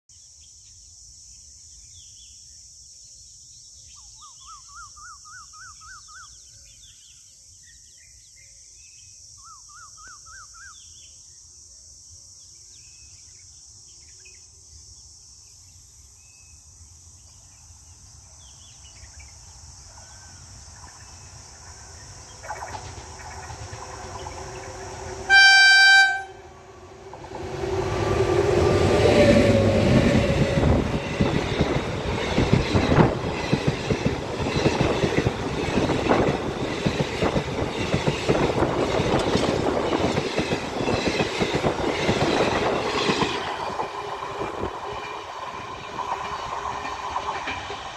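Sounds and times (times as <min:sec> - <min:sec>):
train rumbling and rattling past: 0:19.6 - 0:47.9
train horn blast: 0:25.0 - 0:27.2.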